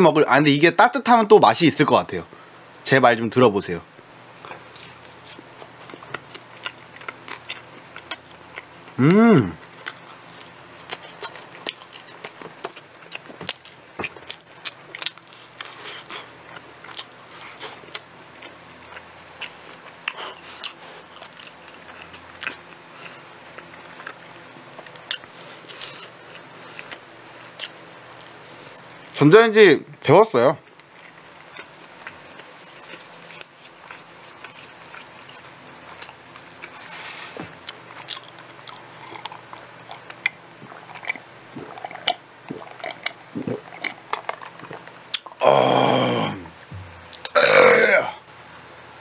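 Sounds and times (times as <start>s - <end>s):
person chewing pizza: 4.3s - 29.2s, 30.6s - 48.2s
person humming: 9.0s - 9.6s, 45.4s - 48.2s
wet mouth clicks: 40.0s - 45.4s.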